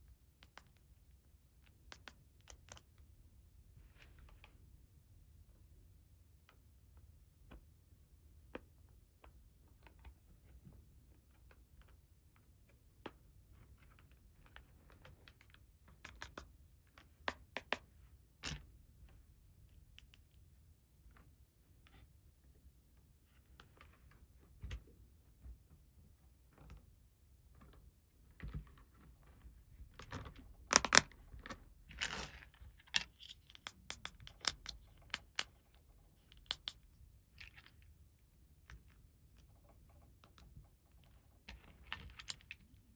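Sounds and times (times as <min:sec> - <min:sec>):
plastic toy pieces clicking: 0:30.7 - 0:31.1, 0:31.9 - 0:35.6, 0:36.3 - 0:36.8.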